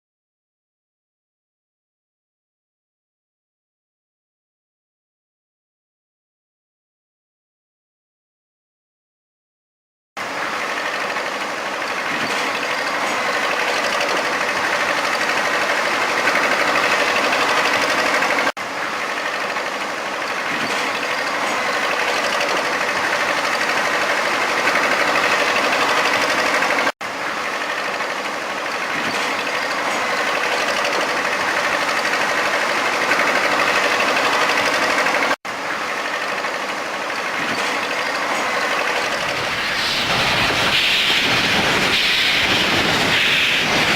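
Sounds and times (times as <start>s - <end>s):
steady mechanical running noise: 10.2s - 43.9s.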